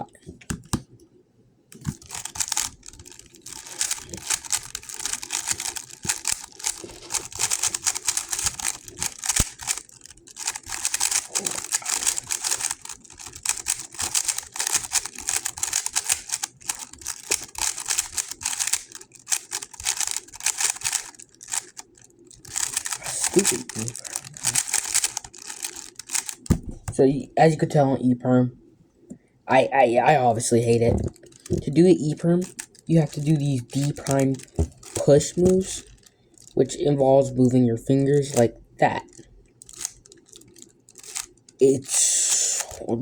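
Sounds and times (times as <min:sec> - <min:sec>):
speedcube plastic clicks: 0:00.4 - 0:00.9, 0:01.7 - 0:27.0, 0:31.2 - 0:36.6, 0:40.9 - 0:41.3.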